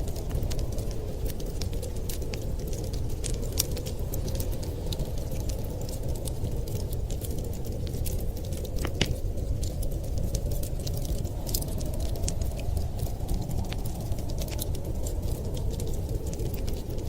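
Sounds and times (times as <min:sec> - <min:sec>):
steady low rumble: 0:00.0 - 0:17.0
wood fire crackling and popping: 0:00.0 - 0:17.0.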